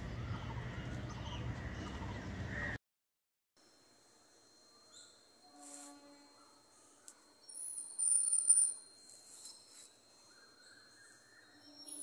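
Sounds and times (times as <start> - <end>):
faint steady high tone: 3.6 - 12.0
bird chirping: 6.3 - 12.0.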